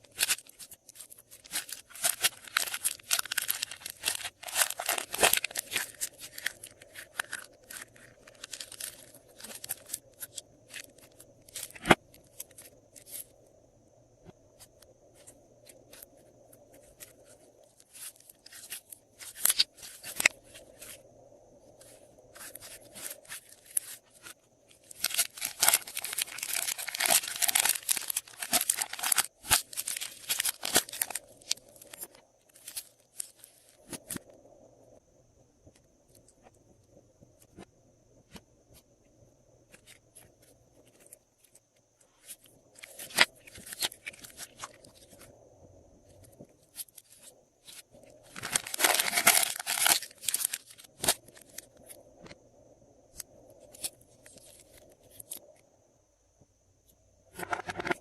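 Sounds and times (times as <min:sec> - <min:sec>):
slime squishing and crackling: 0:00.0 - 0:12.4, 0:22.4 - 0:33.7, 0:46.7 - 0:51.8.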